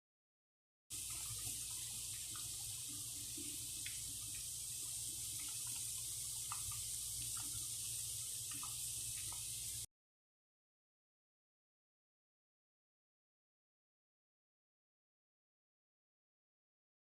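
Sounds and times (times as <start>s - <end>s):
food deep-frying in oil: 0.9s - 9.9s.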